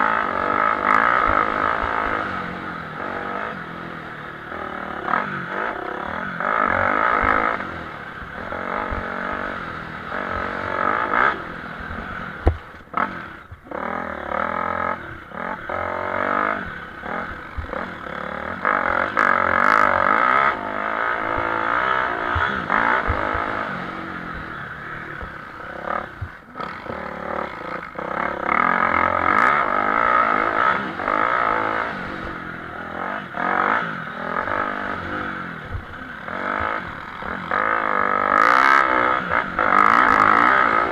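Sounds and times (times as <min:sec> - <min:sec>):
motocross bike engines revving: 0:00.0 - 0:40.9.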